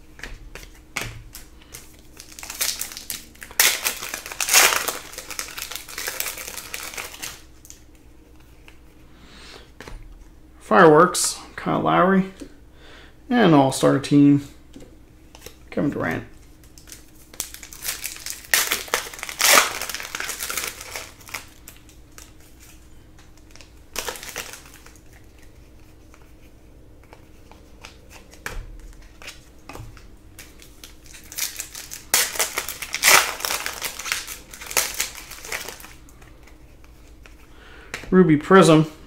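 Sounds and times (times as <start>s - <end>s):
card pack wrappers crinkling: 0.4s - 7.9s, 16.6s - 26.3s, 27.0s - 37.4s.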